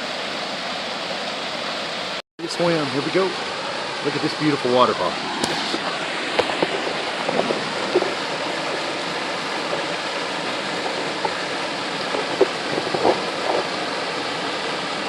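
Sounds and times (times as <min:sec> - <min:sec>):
waterfall rushing: 0:00.0 - 0:15.0
sharp splashes: 0:02.6 - 0:15.0.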